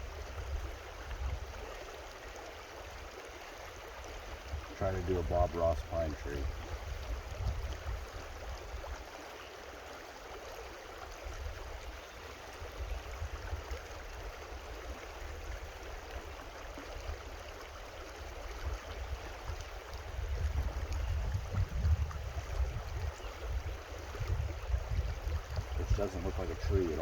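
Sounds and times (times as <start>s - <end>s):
creek water flowing: 0.0s - 27.0s
low uneven rumble: 4.4s - 8.2s, 20.3s - 27.0s.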